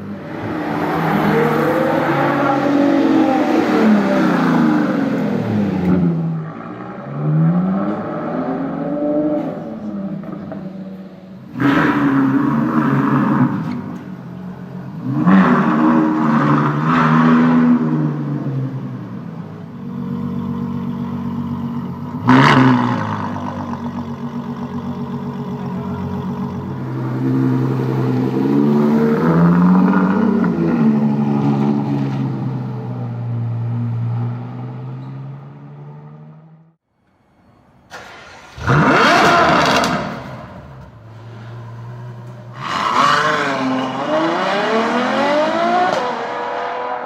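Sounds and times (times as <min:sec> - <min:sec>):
car engine idling and revving: 0:00.0 - 0:37.2, 0:37.8 - 0:47.0.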